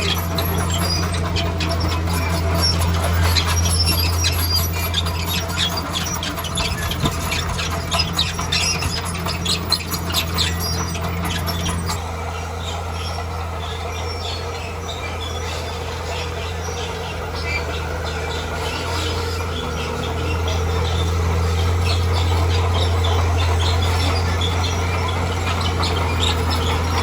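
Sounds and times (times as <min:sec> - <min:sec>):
bulldozer engine drone: 0:00.0 - 0:27.0
steel tracks squeaking and clanking: 0:00.0 - 0:27.0.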